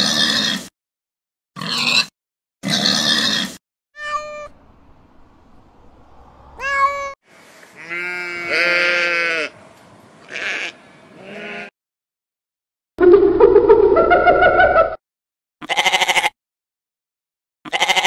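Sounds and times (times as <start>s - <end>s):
cat meowing: 4.0s - 4.6s, 6.6s - 7.2s
sheep bleating: 7.8s - 9.6s, 10.2s - 11.7s, 15.6s - 16.4s, 17.7s - 18.0s.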